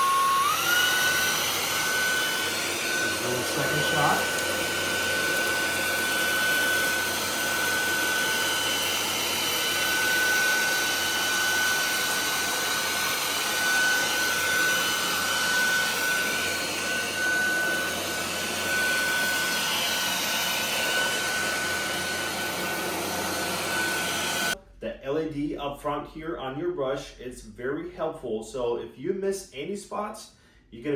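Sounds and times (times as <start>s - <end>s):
stick vacuum cleaner running: 0.0s - 24.6s.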